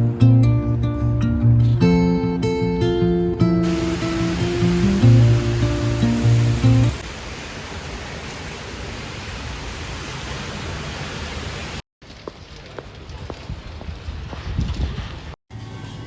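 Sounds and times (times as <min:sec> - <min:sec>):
guitar music: 0:00.0 - 0:07.0
steady hiss: 0:03.6 - 0:11.8.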